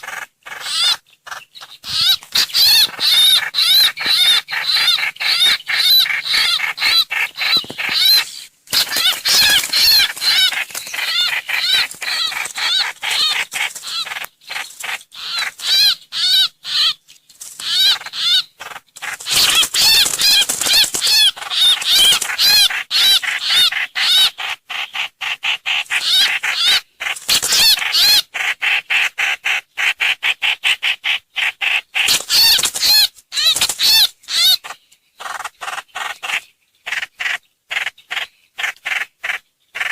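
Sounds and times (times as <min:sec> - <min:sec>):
songbird chattering chirps: 0:00.0 - 0:39.9.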